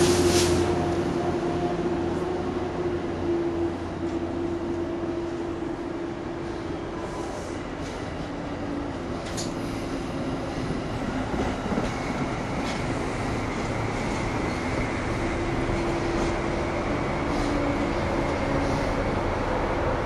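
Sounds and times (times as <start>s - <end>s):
train wheels rumbling on rail: 0.0s - 20.0s
rail joint clicks: 8.9s - 16.6s.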